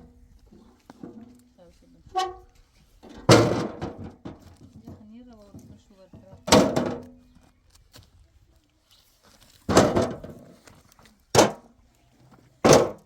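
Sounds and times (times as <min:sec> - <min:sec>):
heavy thuds: 0:03.0 - 0:07.0.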